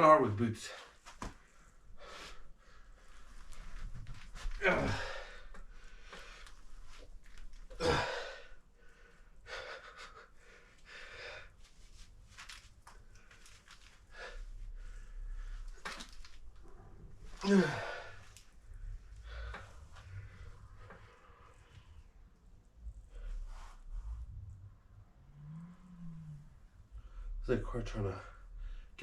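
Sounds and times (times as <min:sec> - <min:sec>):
heavy breathing and gasps: 0:04.4 - 0:06.6, 0:07.6 - 0:11.6, 0:17.4 - 0:18.6
man groaning: 0:04.6 - 0:05.3, 0:07.7 - 0:08.4, 0:17.4 - 0:18.2.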